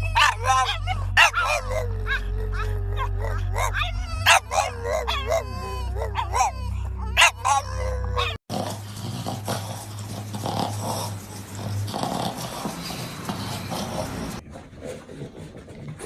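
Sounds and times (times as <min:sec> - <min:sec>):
dog whining and yelping: 0:00.0 - 0:08.4.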